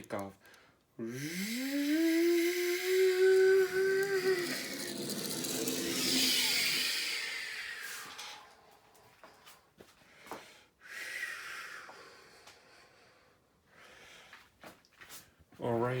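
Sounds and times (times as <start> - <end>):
person imitating jet takeoff: 1.0 - 8.5.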